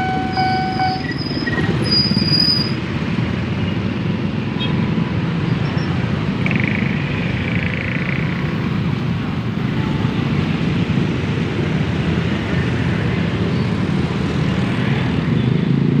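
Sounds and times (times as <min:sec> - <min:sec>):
electric train rumbling: 0:00.0 - 0:04.4.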